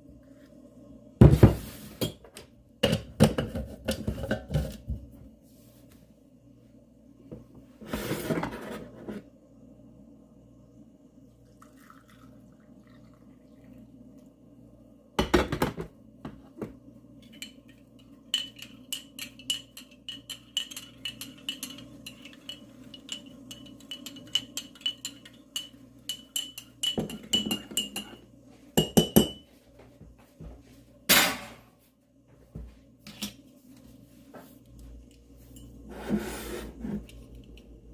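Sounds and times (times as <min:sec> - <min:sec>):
dishes and cutlery clinking: 0:17.2 - 0:28.2.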